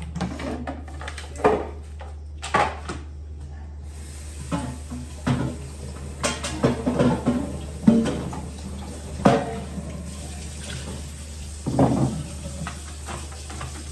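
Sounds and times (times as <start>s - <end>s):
plastic drawers knocking and clattering: 11.6s - 12.8s.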